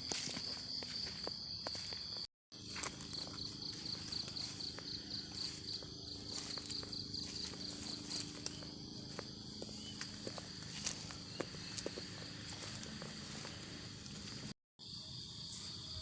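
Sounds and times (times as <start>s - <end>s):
footsteps on forest floor: 0.0s - 14.6s
insect trilling: 2.6s - 14.5s.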